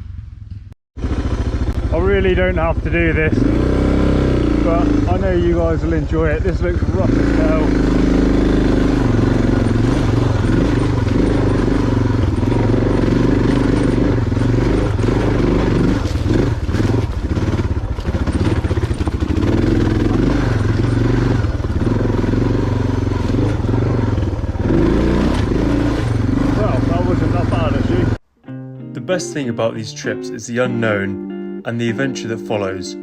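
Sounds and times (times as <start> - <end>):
motorcycle engine running: 0.0 - 28.2
bike knocks and clatter: 12.3 - 19.5.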